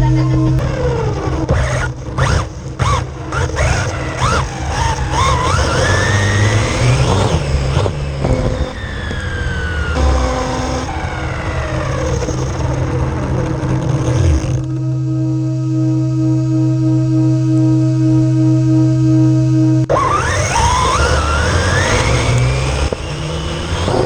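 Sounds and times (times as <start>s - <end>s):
toy car electric motor whining: 0.6s - 14.8s, 19.9s - 24.0s.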